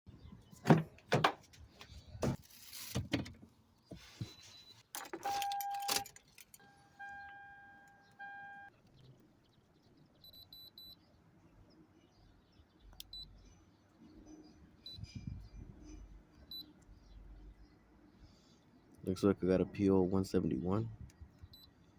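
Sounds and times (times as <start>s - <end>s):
keys jangling: 5.0s - 6.7s
electronic tone: 6.6s - 8.7s
short high beeps: 6.6s - 8.7s.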